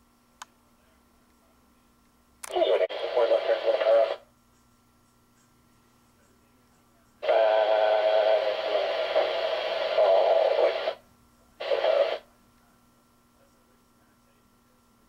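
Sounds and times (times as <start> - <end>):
radio transmission: 2.4 - 4.3, 7.2 - 11.0, 11.6 - 12.3.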